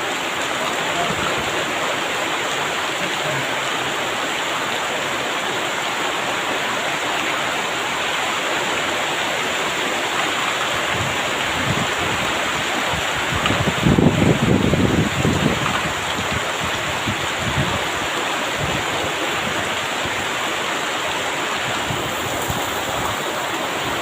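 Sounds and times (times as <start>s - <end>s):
heavy rain pouring: 0.0s - 24.0s
wind rumbling on microphone: 10.6s - 20.5s, 21.5s - 24.0s.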